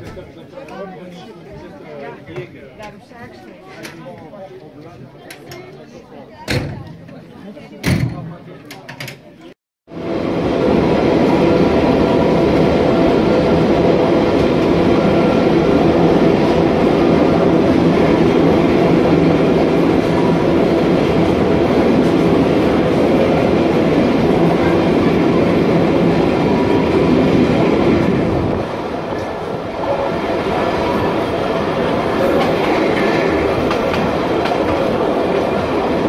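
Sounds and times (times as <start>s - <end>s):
train wheels rumbling on rail: 9.9s - 36.0s.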